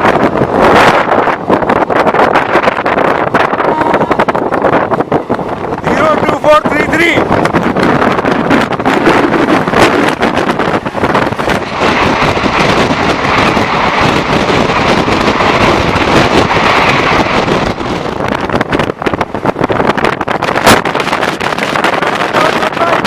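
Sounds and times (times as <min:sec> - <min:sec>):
train wheels rushing on rails: 0:00.0 - 0:23.0
wind on microphone: 0:00.0 - 0:23.0.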